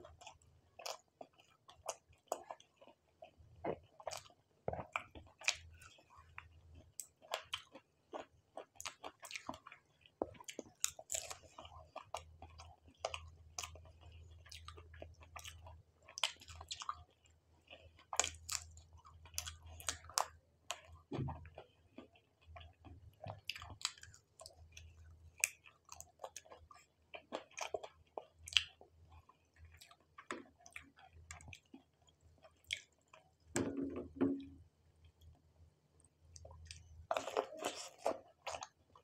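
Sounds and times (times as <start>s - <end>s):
chewing crunchy fried food: 0.0s - 33.6s, 35.0s - 39.0s.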